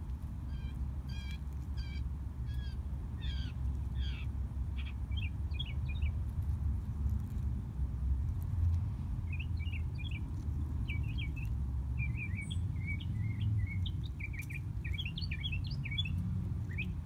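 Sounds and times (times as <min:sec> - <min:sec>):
low steady rumble: 0:00.0 - 0:17.0
bird calling harshly: 0:00.5 - 0:06.1
bird chatter: 0:00.5 - 0:06.2, 0:09.2 - 0:17.0.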